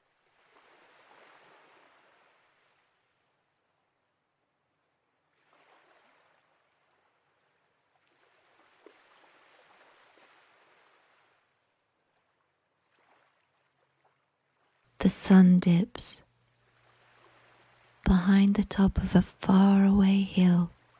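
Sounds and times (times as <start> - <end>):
faint sea water lapping: 0.0 - 4.1, 4.7 - 19.5.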